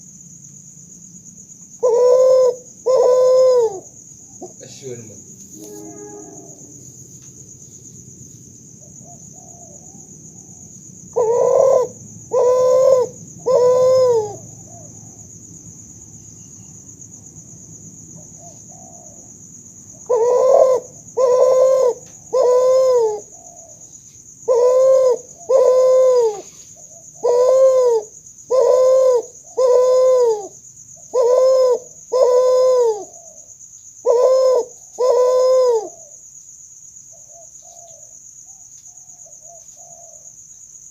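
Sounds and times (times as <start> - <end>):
dove cooing: 1.8 - 6.7, 8.8 - 15.2, 18.2 - 36.2, 37.1 - 40.3
low hum: 5.4 - 7.4
high-pitched whine: 5.4 - 7.9.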